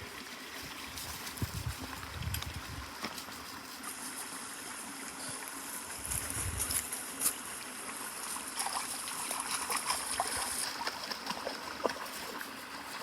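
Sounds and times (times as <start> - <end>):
brook water trickling: 0.0 - 13.0
small splashes and clicks: 8.3 - 13.0.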